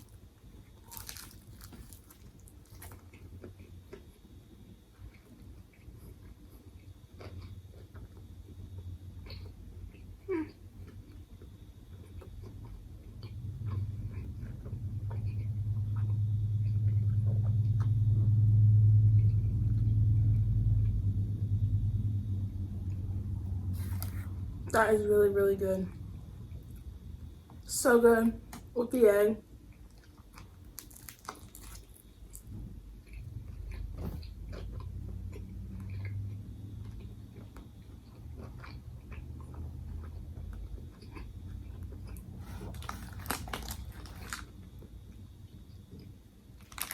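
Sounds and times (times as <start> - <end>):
chewing sandwich: 0.0 - 18.0, 22.8 - 24.4, 29.6 - 46.9
low hum: 11.7 - 27.7
low rumble: 13.2 - 27.6.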